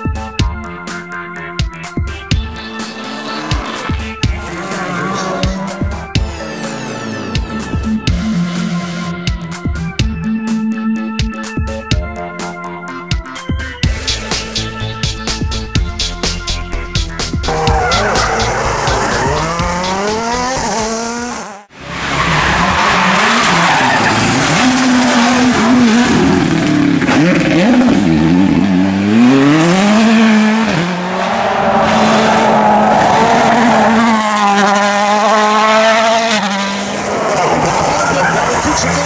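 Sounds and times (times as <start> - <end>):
rally car engines at full throttle: 1.7 - 10.9, 13.9 - 39.0.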